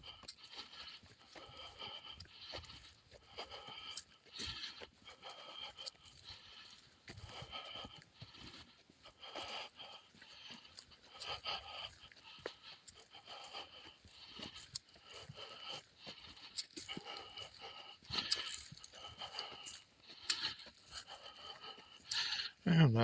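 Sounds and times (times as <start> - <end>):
person breathing hard: 0.0 - 22.6
footsteps: 9.3 - 22.3.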